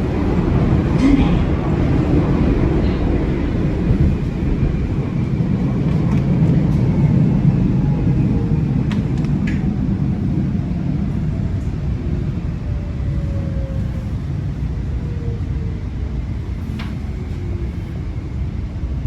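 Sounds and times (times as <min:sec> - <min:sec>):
train rumbling on rails: 0:00.0 - 0:19.0.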